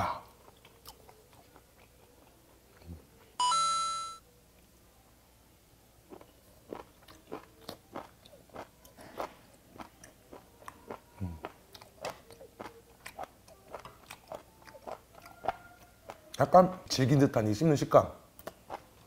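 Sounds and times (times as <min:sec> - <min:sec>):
crunchy chewing: 0:00.2 - 0:03.3, 0:06.1 - 0:16.4, 0:18.3 - 0:19.0.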